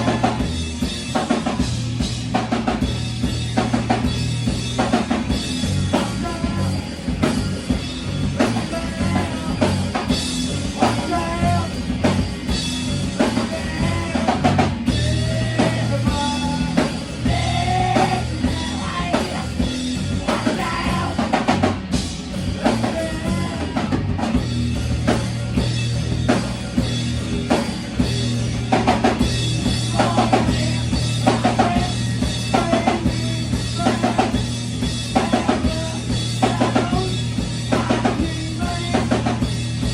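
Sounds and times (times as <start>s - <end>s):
person singing: 0.0s - 0.5s, 10.8s - 11.8s, 13.2s - 21.5s, 22.6s - 24.0s, 29.8s - 34.4s, 35.1s - 39.5s
drum kit beat: 0.0s - 39.9s
live rock band playing: 0.0s - 39.9s.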